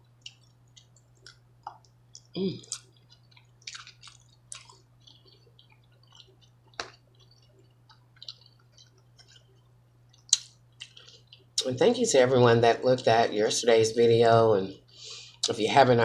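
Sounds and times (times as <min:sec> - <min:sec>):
chewing soft food: 0:00.0 - 0:11.7.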